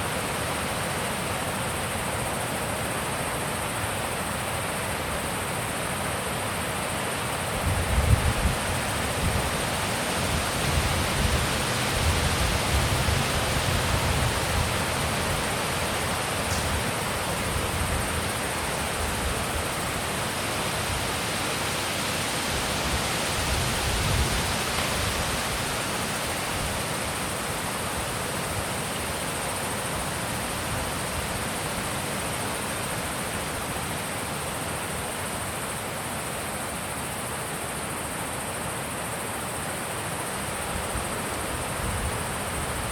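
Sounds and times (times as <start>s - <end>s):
wind gusts rumbling on microphone: 7.6s - 20.0s, 21.9s - 26.9s
wind blowing: 7.6s - 26.8s.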